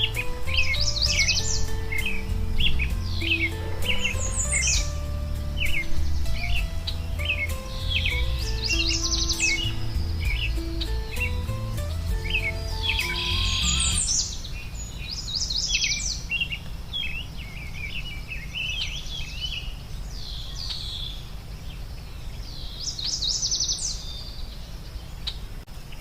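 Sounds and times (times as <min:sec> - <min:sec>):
soft music: 0:00.0 - 0:14.3
songbirds chirping and singing: 0:00.0 - 0:25.4
low background noise: 0:00.0 - 0:26.0.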